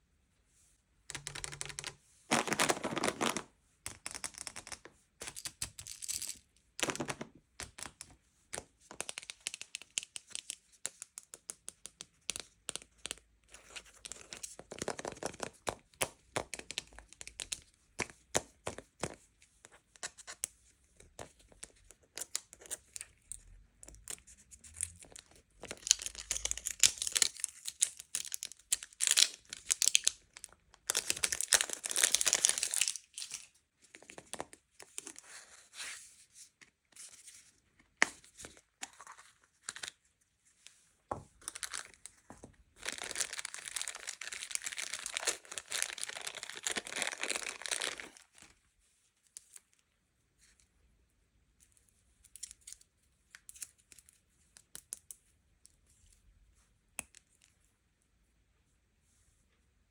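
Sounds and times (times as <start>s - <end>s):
packaging tearing and crinkling: 42.8s - 48.3s.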